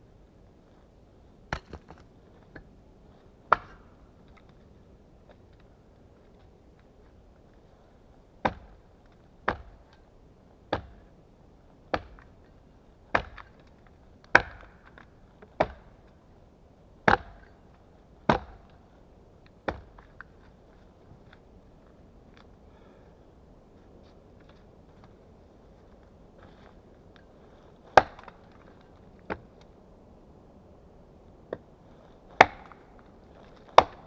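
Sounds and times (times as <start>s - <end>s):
small axe chopping wood: 1.5s - 2.7s, 3.5s - 4.0s, 8.4s - 8.8s, 9.5s - 9.8s, 10.7s - 11.1s, 11.9s - 12.3s, 13.1s - 13.6s, 14.3s - 16.0s, 17.1s - 17.6s, 18.3s - 18.7s, 19.7s - 20.3s, 28.0s - 28.7s, 32.3s - 34.0s.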